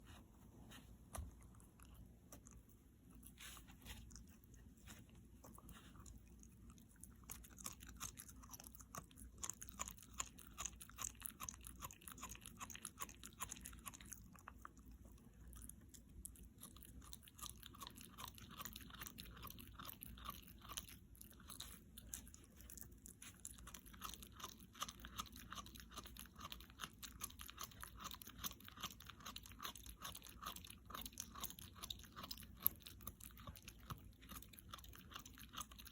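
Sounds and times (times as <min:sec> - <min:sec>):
dog chewing crunchy food: 0:01.1 - 0:35.9.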